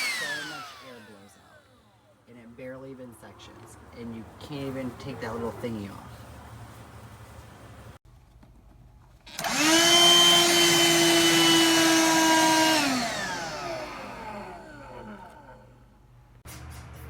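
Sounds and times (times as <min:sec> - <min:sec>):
vacuum switch: 0:00.0 - 0:01.6, 0:09.3 - 0:15.7
handheld vacuum motor whining: 0:00.0 - 0:02.1, 0:09.3 - 0:15.9.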